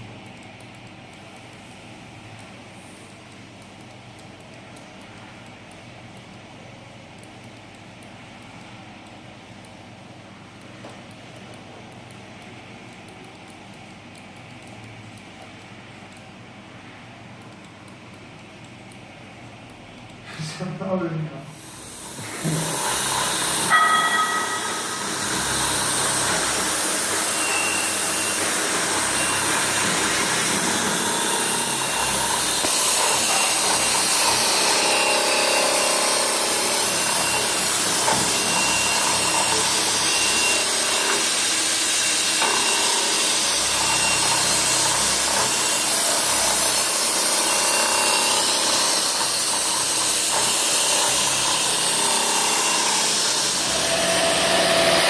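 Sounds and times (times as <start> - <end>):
milling machine cutting: 21.5 - 55.0
faint high whistle: 27.4 - 28.0.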